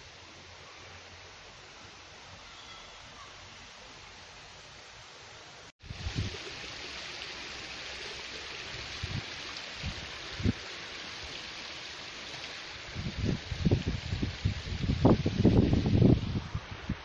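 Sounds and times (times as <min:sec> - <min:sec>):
stream water flowing: 0:03.4 - 0:17.0
wind thumps on microphone: 0:05.8 - 0:06.5, 0:12.8 - 0:17.0.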